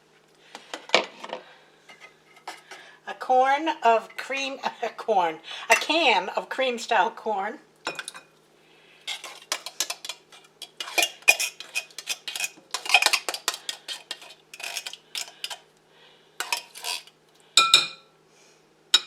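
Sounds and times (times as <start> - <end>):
metal spoon scraping a can: 9.1 - 15.6, 16.4 - 17.2.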